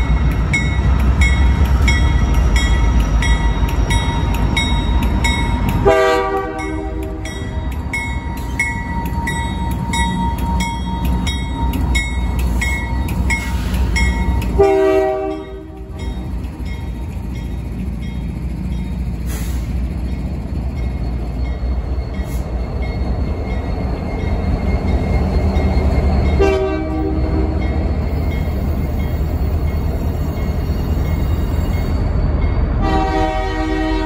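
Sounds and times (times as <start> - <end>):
freight train rumbling past: 0.0 - 34.0
multi-note train horn: 5.8 - 7.4, 14.5 - 16.0, 26.4 - 27.6, 32.8 - 34.0.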